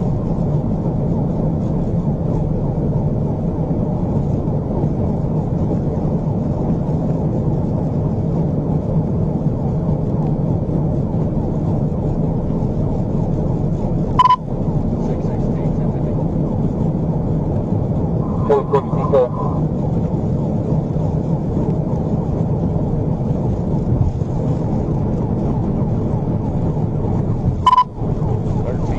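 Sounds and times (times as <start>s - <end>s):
car engine: 0.0s - 28.9s
road noise: 0.0s - 28.9s
wind noise: 0.0s - 28.9s
short high beep: 14.2s - 14.4s, 27.6s - 27.9s.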